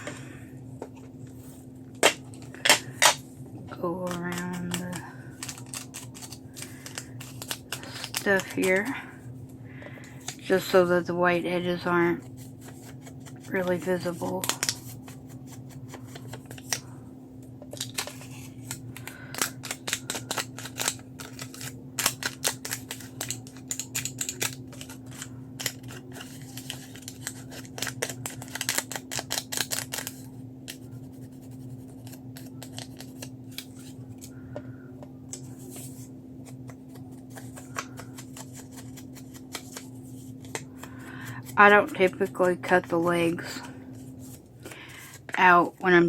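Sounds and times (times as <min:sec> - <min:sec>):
steady low hum: 0:00.0 - 0:46.0
scissors snipping paper: 0:03.8 - 0:08.9, 0:17.8 - 0:33.3.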